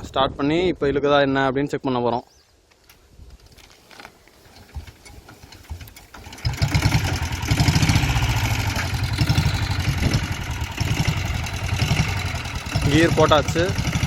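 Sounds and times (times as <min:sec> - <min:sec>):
motorcycle engine starting and idling: 0:04.4 - 0:14.0.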